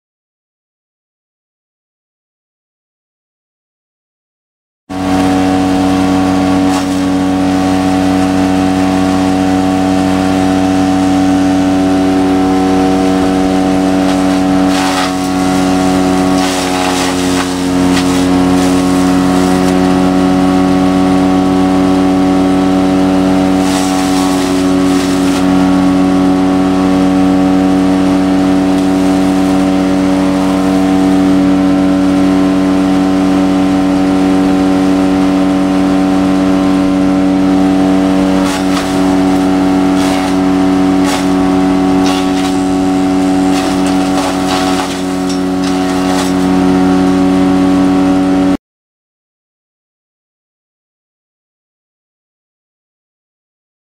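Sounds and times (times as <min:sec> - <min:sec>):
wood chipper engine running: 0:04.9 - 0:48.6
branches being shredded: 0:05.0 - 0:09.2, 0:11.9 - 0:20.3, 0:23.2 - 0:27.0, 0:28.0 - 0:31.2, 0:37.7 - 0:47.4.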